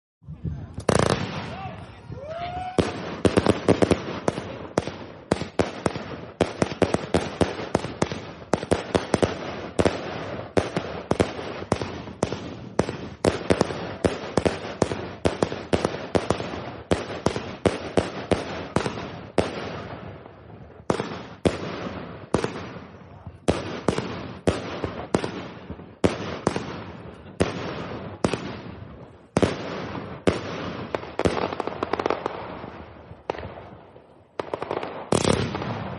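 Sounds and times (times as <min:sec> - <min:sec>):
firework cake bangs: 0:20.9 - 0:35.9.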